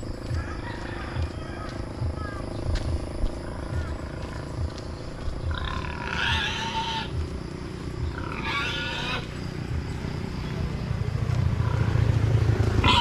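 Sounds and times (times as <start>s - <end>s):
steady low rumble: 0.0s - 13.0s
farm animal calling: 5.4s - 7.3s, 8.0s - 9.6s, 11.6s - 12.1s, 12.8s - 13.0s.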